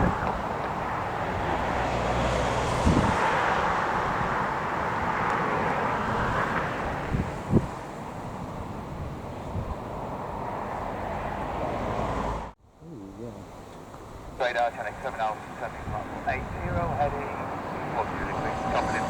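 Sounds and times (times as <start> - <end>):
wind buffeting microphone: 0.0 - 11.9, 14.0 - 19.0
aircraft engine rushing: 14.6 - 19.0.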